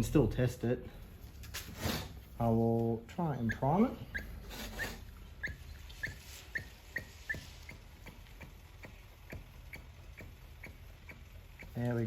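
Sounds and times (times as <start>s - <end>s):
primer bulb squeaky clicks: 3.4s - 7.8s.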